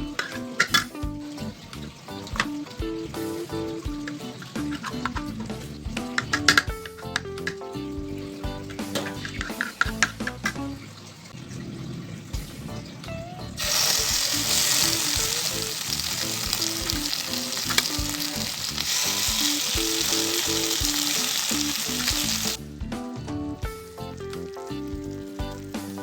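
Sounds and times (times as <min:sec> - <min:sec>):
background music: 0:00.0 - 0:10.9, 0:12.4 - 0:26.0
meat sizzling on grill pan: 0:13.6 - 0:22.6.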